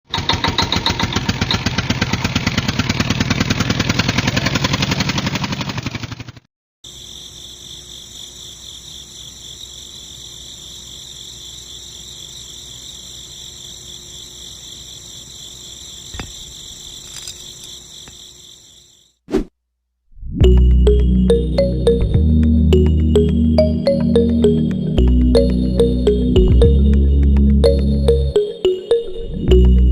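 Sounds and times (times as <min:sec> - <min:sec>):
toy motor rattling: 0:17.0 - 0:17.7
high-pitched pulsing trill: 0:20.4 - 0:29.9.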